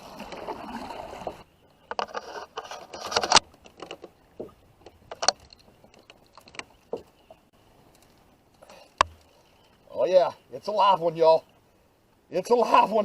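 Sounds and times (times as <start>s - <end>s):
water washing against a kayak: 0.0s - 1.5s
paddle and gear knocking: 1.9s - 7.4s.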